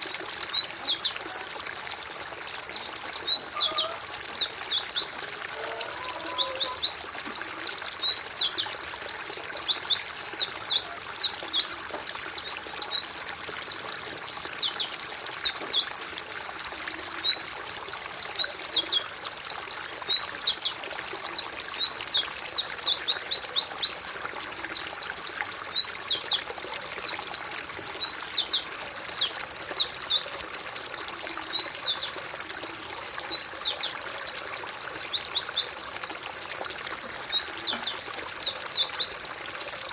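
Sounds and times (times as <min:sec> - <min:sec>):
bird chirping rapidly: 0:01.8 - 0:05.0.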